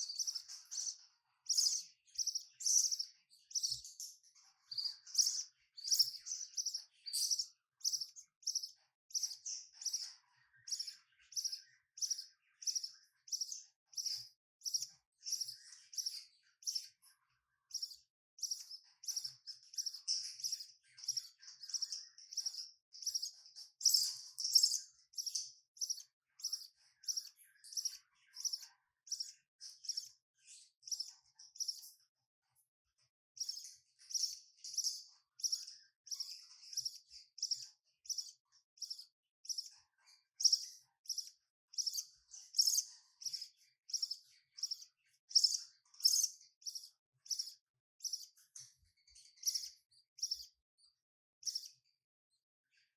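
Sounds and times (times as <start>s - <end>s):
bird chicks cheeping: 0.0s - 32.0s, 33.3s - 50.6s, 51.4s - 51.8s.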